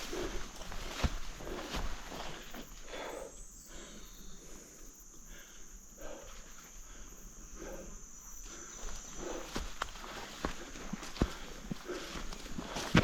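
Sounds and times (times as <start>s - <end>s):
soft footsteps on ground: 0.0s - 3.3s, 8.4s - 13.0s
high-pitched insect trill: 0.0s - 12.6s.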